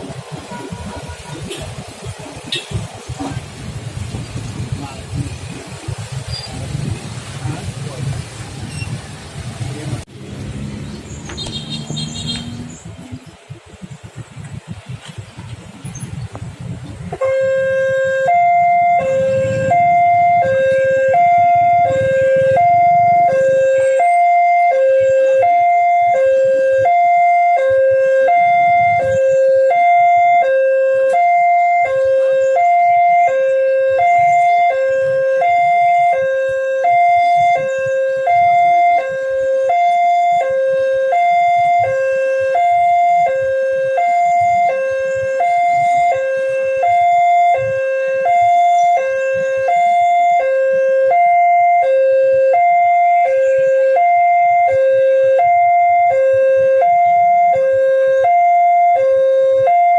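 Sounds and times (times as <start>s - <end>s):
two-tone crossing alarm: 17.2s - 59.9s.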